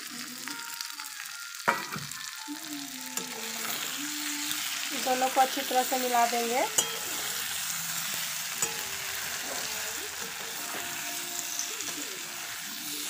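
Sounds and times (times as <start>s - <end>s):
vegetables sizzling in hot oil: 0.0s - 13.0s
spatula stirring and scraping: 3.2s - 13.0s.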